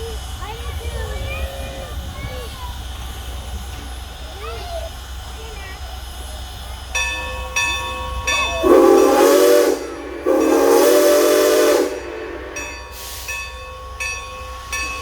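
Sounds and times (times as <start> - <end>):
bell ringing: 7.0 - 8.8, 12.0 - 15.0
steam locomotive whistle: 7.2 - 14.8.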